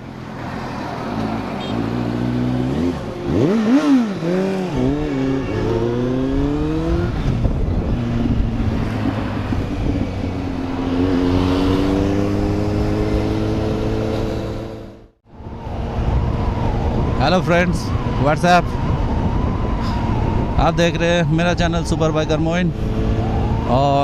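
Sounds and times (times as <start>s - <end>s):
motorcycle engine revving: 1.0s - 15.2s.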